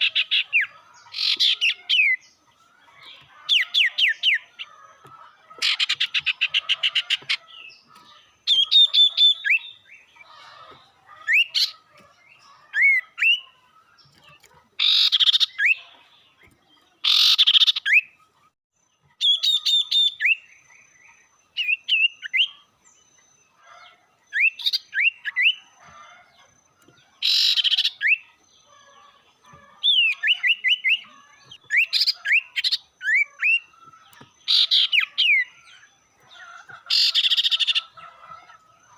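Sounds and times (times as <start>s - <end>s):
songbird whistled chirps: 19.1s - 22.6s, 24.3s - 25.7s, 29.9s - 33.8s
bird harsh scolding: 27.2s - 28.2s.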